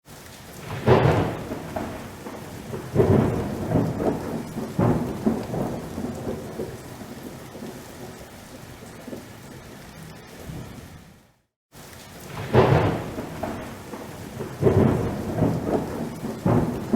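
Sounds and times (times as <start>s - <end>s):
steady rain: 0.0s - 16.9s
thunder rumbling: 0.6s - 11.2s, 12.2s - 16.9s.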